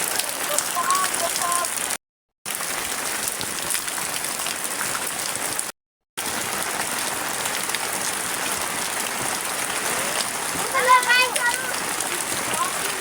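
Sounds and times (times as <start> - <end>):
heavy rain hissing: 0.0 - 2.0, 6.2 - 13.0
rain drop ticks: 0.0 - 13.0.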